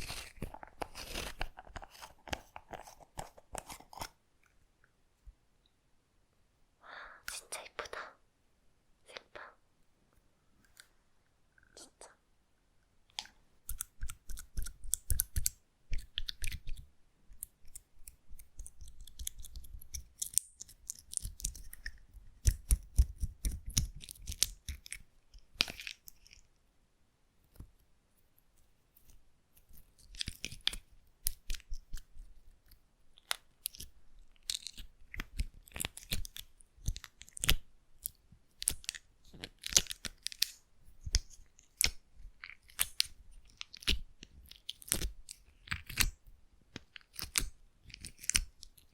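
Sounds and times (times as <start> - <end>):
slime squishing with sticky clicks: 13.2 - 25.0, 33.2 - 46.2.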